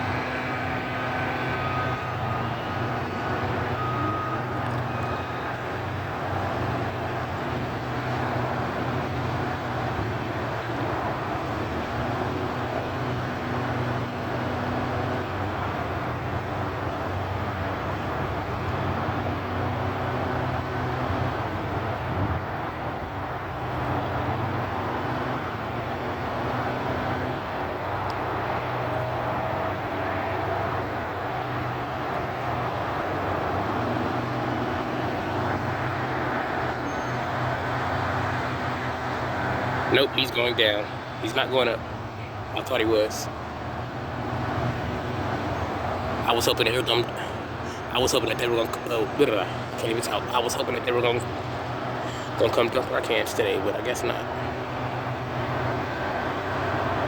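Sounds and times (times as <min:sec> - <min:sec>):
diesel engine humming: 0:00.0 - 0:57.0.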